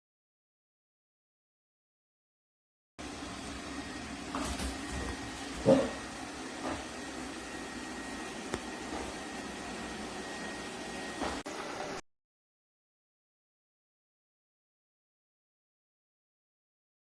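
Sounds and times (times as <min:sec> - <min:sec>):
robot vacuum cleaner humming: 0:03.0 - 0:12.0.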